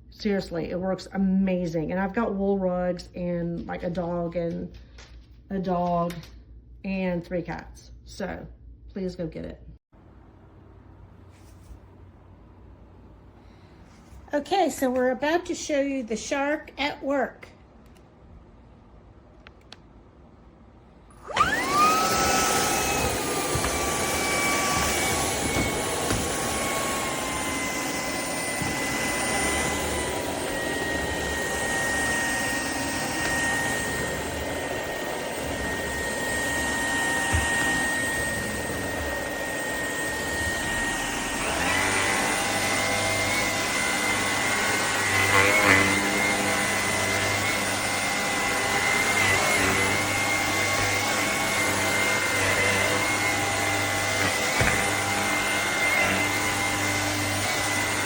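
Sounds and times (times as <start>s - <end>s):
stick vacuum motor whine: 21.1s - 58.0s.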